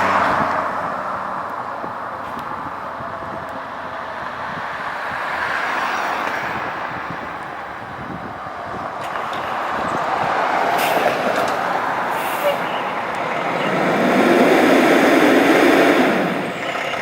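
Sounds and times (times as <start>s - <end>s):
passing vehicles: 0.0s - 17.0s.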